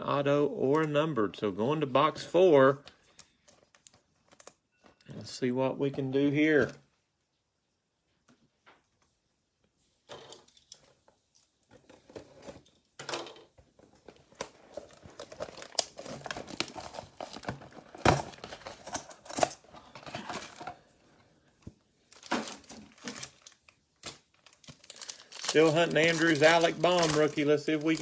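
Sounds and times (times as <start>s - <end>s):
foil packs crinkling and ripping: 14.3s - 20.7s, 22.0s - 28.0s.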